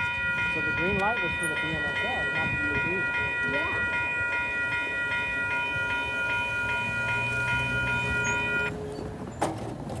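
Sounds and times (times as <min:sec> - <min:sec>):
crossing warning bell clanging: 0:00.0 - 0:09.1.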